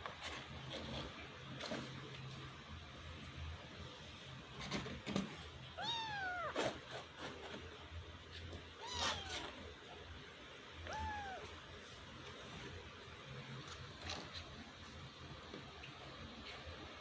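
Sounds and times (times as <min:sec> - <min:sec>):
kitten meowing: 0:05.8 - 0:06.6, 0:08.8 - 0:09.6, 0:10.8 - 0:11.5.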